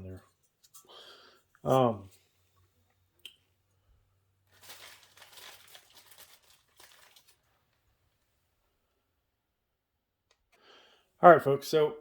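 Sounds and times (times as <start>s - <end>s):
hands crinkling and rustling parts: 0.1s - 3.8s, 4.5s - 8.3s.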